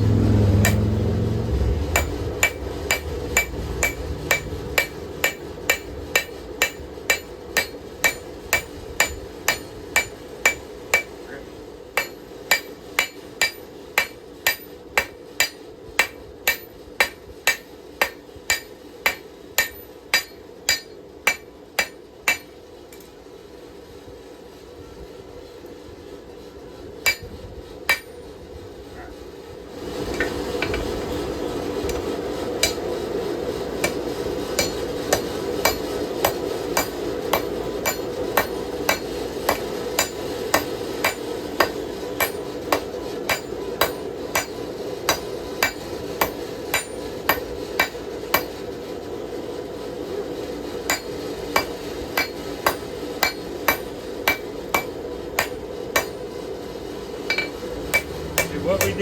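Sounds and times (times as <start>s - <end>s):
low rushing noise: 0.0s - 6.7s
hammer striking steel on anvil: 0.0s - 11.4s, 12.0s - 23.1s, 27.0s - 28.3s, 32.6s - 33.0s, 33.7s - 48.6s, 50.8s - 56.3s, 57.3s - 59.0s.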